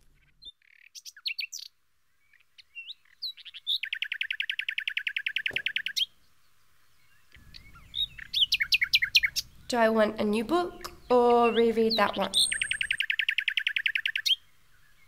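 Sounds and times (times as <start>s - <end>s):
songbirds chirping: 0.0s - 15.0s
fast even bird trill: 7.4s - 9.8s, 10.7s - 14.4s.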